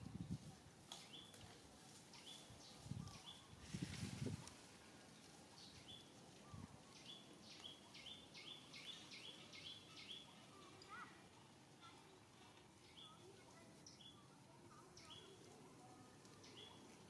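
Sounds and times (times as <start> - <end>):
faint bird chirping: 5.2 - 11.2, 11.8 - 17.0.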